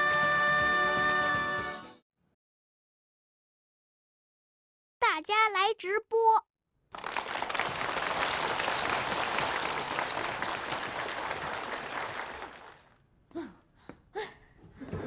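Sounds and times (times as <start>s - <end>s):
audience applause: 6.9s - 13.0s.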